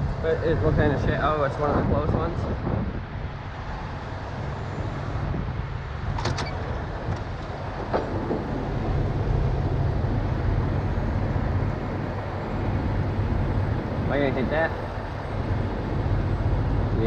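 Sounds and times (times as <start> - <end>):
diesel engine running: 6.0 - 17.0.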